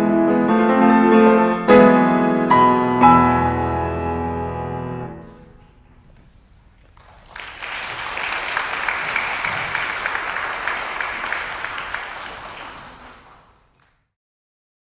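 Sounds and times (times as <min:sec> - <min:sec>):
audience applause: 0:06.9 - 0:14.1.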